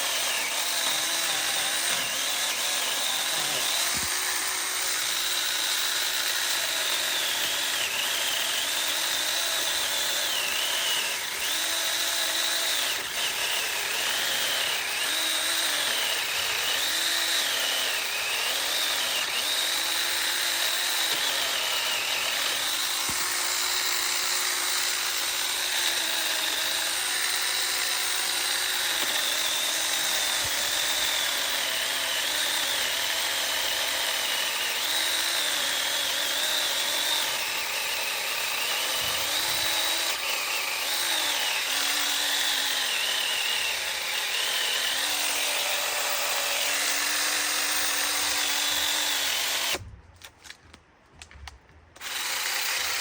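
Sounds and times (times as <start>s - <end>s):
chainsaw cutting wood: 0.0s - 50.6s, 52.0s - 53.0s.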